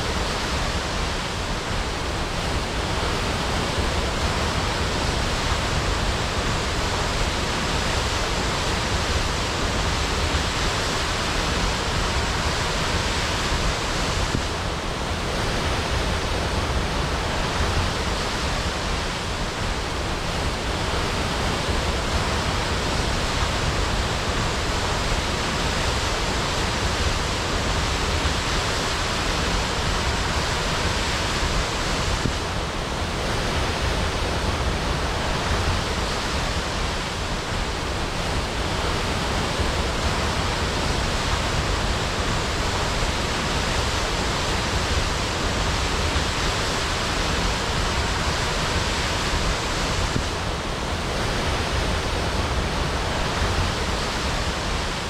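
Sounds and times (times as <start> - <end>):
waterfall crashing: 0.0 - 55.0.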